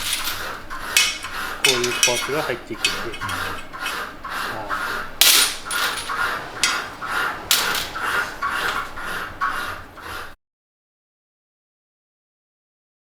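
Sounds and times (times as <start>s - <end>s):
hand file rasping on metal: 0.0s - 10.4s.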